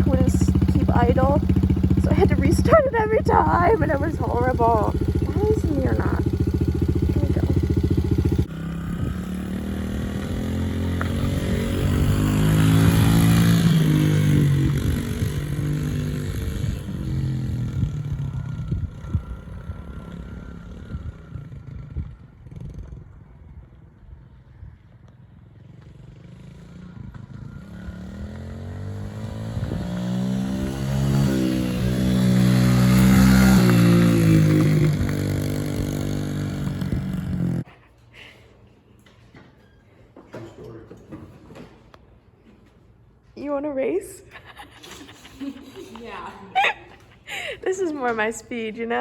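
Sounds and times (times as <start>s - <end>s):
dirt bike engine revving: 0.0s - 23.1s, 26.0s - 37.7s.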